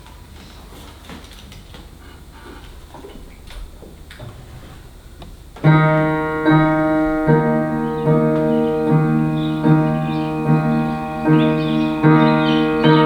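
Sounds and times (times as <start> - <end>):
piano playing low chords: 2.7 - 13.0.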